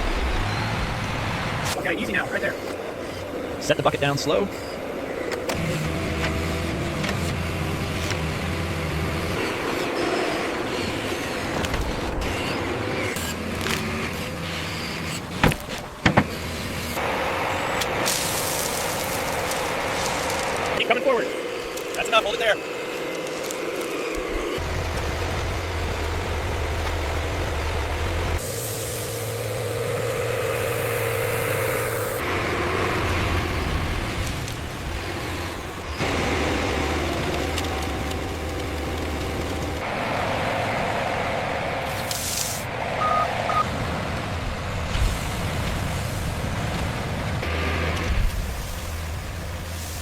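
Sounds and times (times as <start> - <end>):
heavy diesel engines running: 0.0 - 50.0
short beeps: 43.0 - 43.7.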